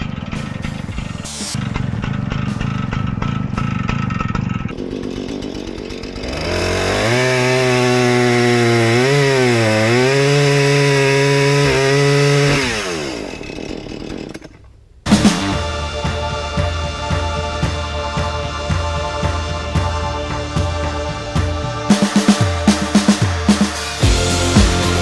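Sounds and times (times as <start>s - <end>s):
chainsaw revving: 4.7s - 14.5s, 21.8s - 25.0s.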